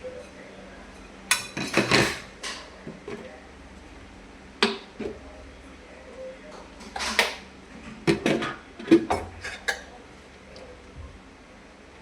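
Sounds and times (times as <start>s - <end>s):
dishes and pots clattering: 0.2s - 3.2s, 6.8s - 10.0s.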